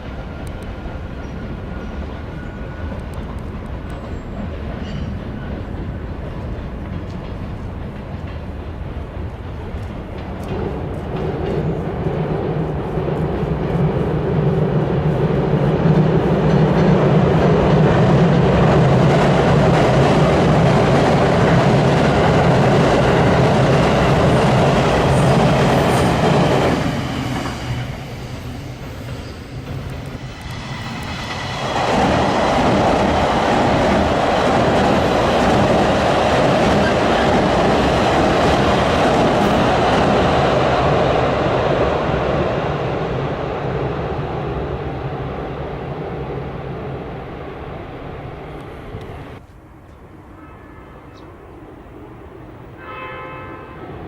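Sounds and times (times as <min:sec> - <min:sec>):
train crossing a bridge: 0:00.0 - 0:54.0.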